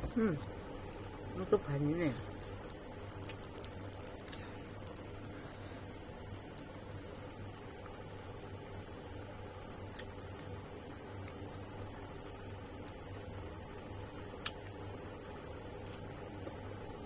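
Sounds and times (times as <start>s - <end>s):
steady low hum: 0.0s - 17.0s
chewing juicy fruit: 0.2s - 8.7s.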